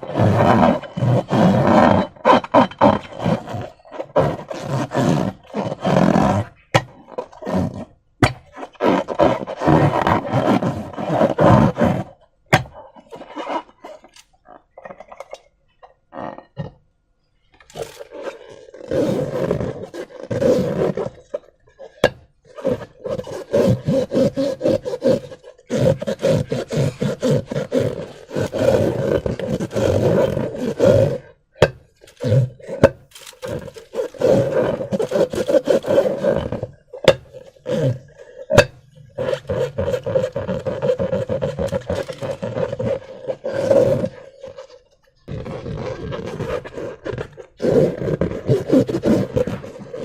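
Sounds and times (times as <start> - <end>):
rubber balloons squeezed: 0.0 - 50.0.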